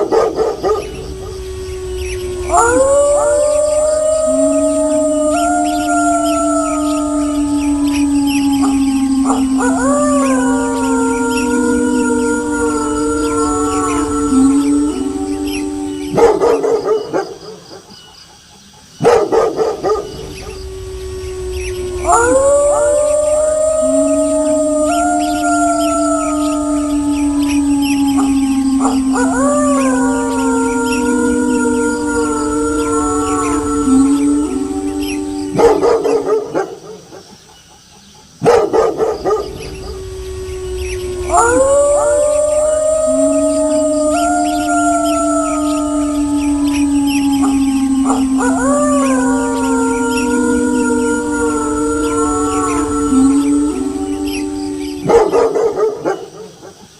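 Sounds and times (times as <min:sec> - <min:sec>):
wolf howl: 0:00.0 - 0:18.1, 0:19.0 - 0:37.3, 0:38.4 - 0:56.9
dog barking: 0:19.0 - 0:20.1, 0:38.4 - 0:39.5.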